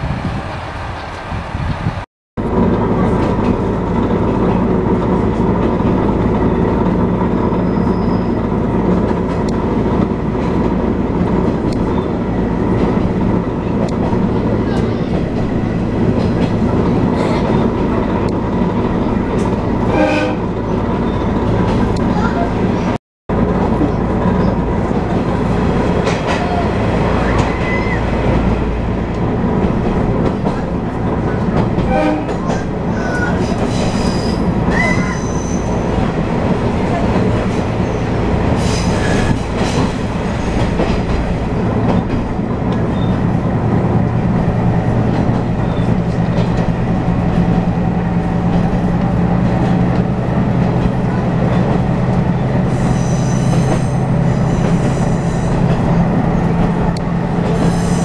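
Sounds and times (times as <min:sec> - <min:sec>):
wheels rumbling on rails: 0:00.0 - 0:58.0
high wheel squeals: 0:07.5 - 0:08.4, 0:32.5 - 0:35.9, 0:52.7 - 0:55.6.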